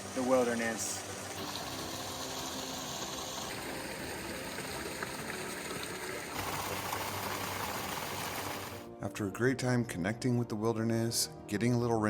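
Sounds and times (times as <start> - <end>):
running water of a creek: 0.0 - 8.9.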